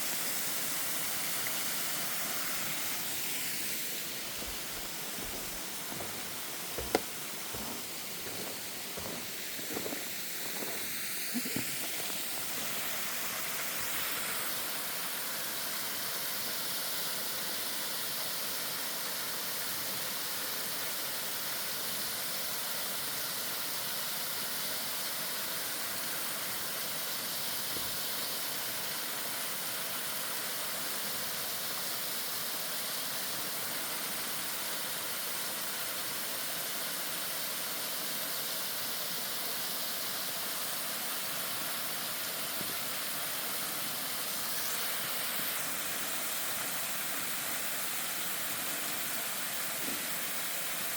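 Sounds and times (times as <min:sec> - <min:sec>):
waterfall rushing: 0:00.0 - 0:21.0, 0:40.4 - 0:50.9.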